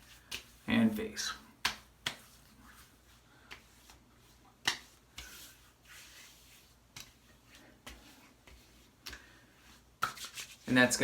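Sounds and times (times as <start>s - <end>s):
hands rubbing balm on skin: 0.0s - 10.9s.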